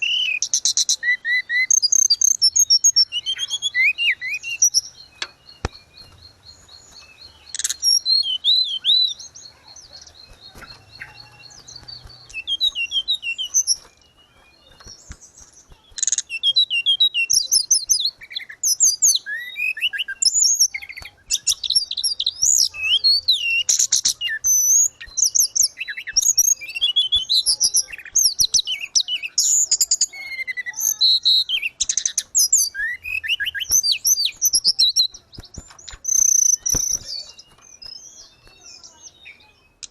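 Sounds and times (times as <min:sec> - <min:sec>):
songbird twittering: 0:00.0 - 0:39.9.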